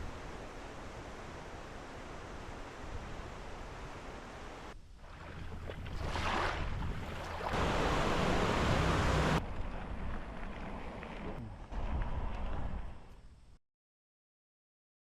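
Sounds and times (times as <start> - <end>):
outdoor rushing noise: 7.5 - 13.0.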